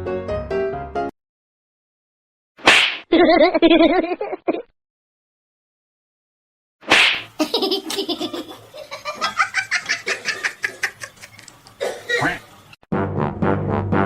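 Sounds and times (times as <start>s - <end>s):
person laughing: 3.1s - 4.7s, 7.4s - 12.4s.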